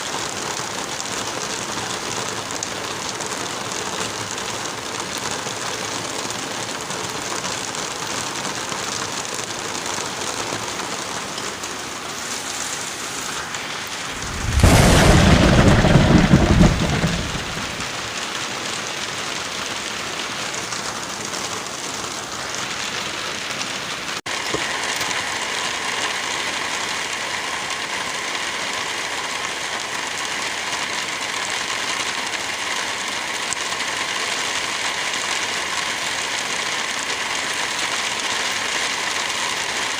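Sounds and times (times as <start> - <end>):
steady rain: 0.0 - 39.9
thunderclap rumbling: 14.0 - 18.3.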